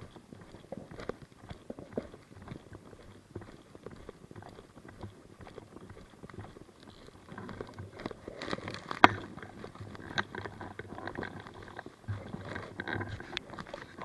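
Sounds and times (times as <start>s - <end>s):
footsteps: 7.3s - 14.0s.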